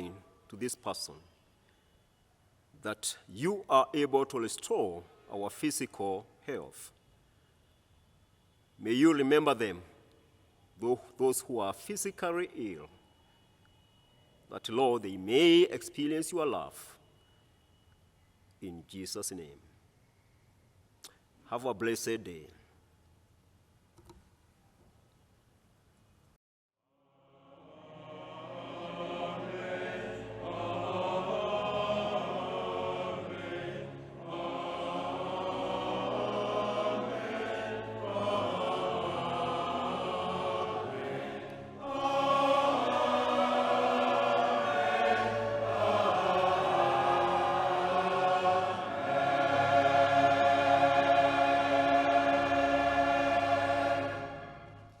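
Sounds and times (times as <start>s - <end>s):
choir singing held chords: 0.0s - 1.2s, 27.0s - 55.0s.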